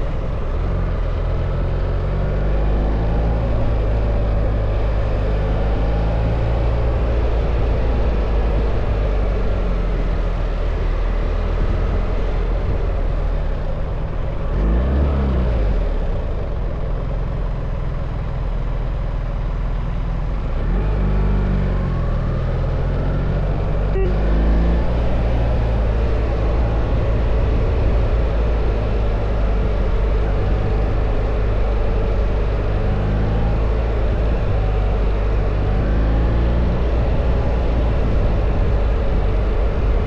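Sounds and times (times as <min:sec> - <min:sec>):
motorcycle engine running: 0:15.2 - 0:40.0
wind rush over helmet mic: 0:33.9 - 0:40.0.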